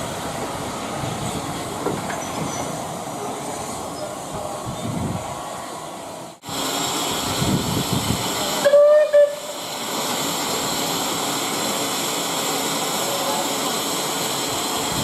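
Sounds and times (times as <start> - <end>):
steam hissing: 0.0 - 15.0
steam locomotive whistle: 8.6 - 9.6.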